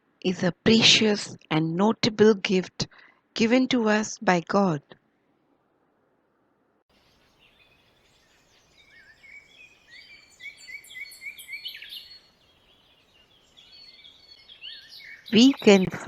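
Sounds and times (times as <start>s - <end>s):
faint outdoor background noise: 0.0s - 16.0s
birds chirping and whistling: 7.2s - 16.0s.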